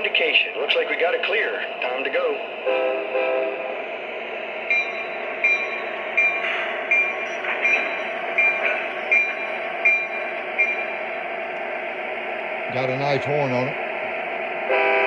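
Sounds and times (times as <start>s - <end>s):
diesel engine rumble: 0.0s - 15.0s
locomotive bell ringing: 4.6s - 11.2s.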